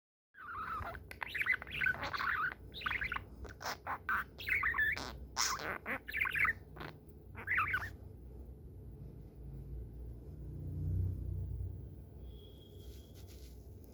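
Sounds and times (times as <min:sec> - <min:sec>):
budgerigar chirping and squawking: 0:00.4 - 0:08.0.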